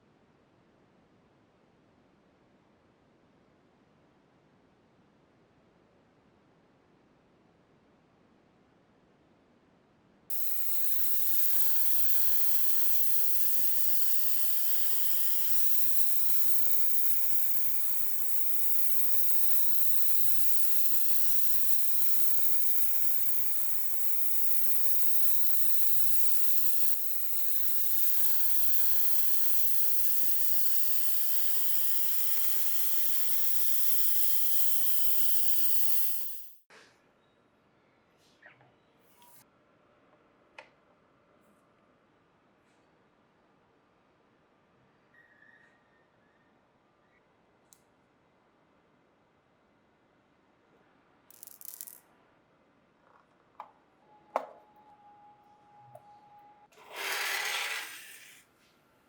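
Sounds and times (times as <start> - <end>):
pressurized spray hissing: 10.3 - 36.6.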